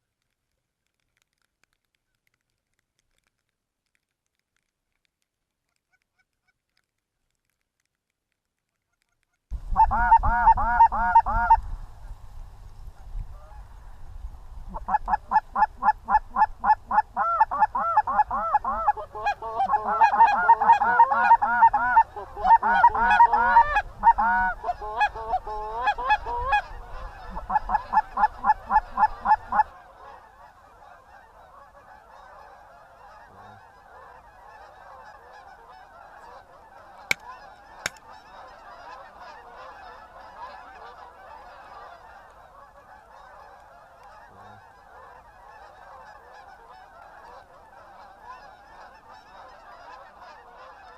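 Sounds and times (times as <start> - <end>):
faint steady hiss: 0.0 - 50.9
goose honking: 9.7 - 11.6, 14.7 - 50.9.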